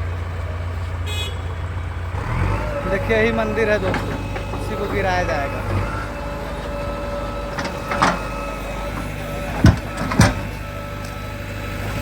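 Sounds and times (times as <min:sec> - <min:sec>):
diesel engine running: 0:00.0 - 0:12.0
short knocks: 0:03.6 - 0:11.1.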